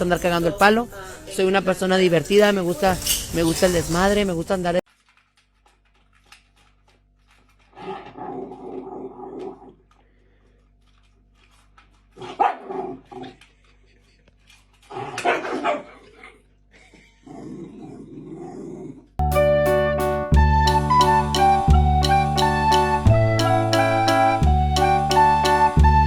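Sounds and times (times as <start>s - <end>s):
dog barking loudly: 12.2s - 13.0s, 15.0s - 16.0s.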